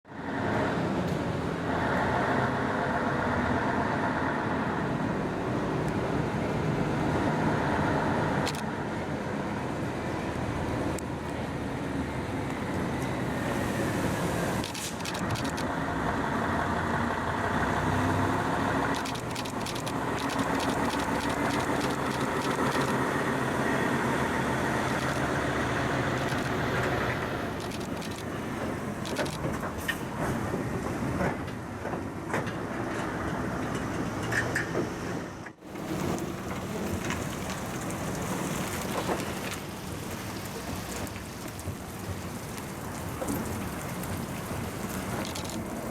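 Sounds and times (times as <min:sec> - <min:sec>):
sharp clicks and rattles: 0:14.6 - 0:15.7, 0:18.9 - 0:23.0, 0:24.8 - 0:25.4, 0:26.1 - 0:28.4, 0:29.0 - 0:29.7, 0:45.2 - 0:45.7
truck diesel engine running: 0:14.7 - 0:28.8.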